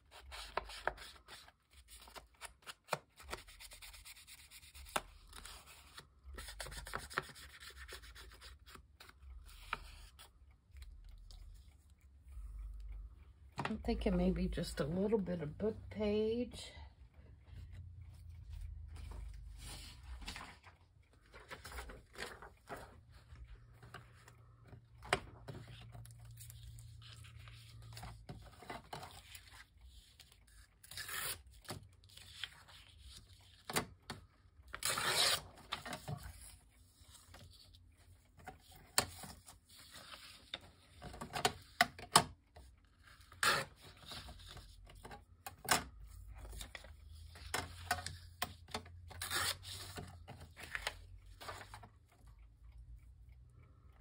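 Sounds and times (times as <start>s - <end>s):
paper rustling: 18.6s - 24.4s, 46.1s - 52.0s
paper tearing: 34.8s - 35.5s.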